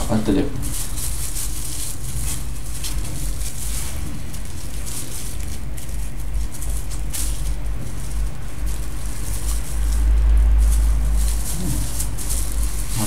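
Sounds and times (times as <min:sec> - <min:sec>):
packaging rustling: 0:00.0 - 0:13.0
low rumble: 0:07.4 - 0:13.0.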